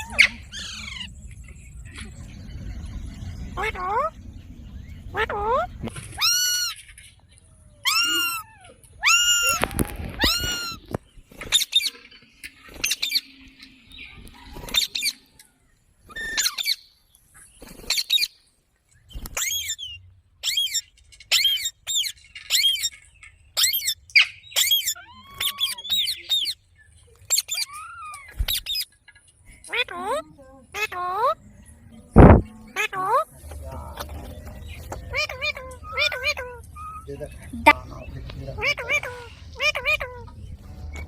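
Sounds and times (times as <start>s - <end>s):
parrot screeching calls: 6.2s - 6.8s, 7.8s - 10.9s, 16.1s - 16.8s, 23.6s - 26.6s, 27.3s - 28.8s, 35.1s - 37.2s
parrot soft chatter: 35.0s - 37.9s, 38.5s - 40.4s.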